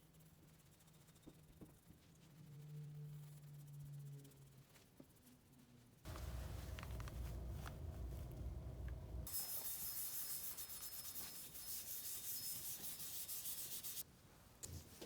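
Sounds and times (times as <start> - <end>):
sanding hiss: 9.2 - 14.0.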